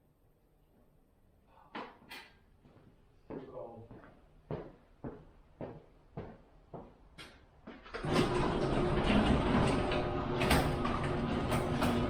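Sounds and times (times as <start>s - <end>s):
garage door opener rattling hum: 8.0s - 12.0s.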